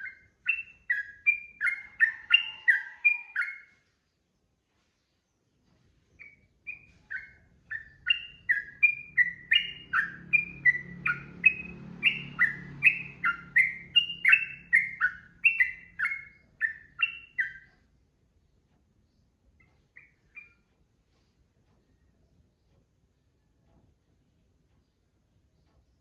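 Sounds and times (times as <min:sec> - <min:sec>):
bird whistled notes: 0:06.2 - 0:17.6.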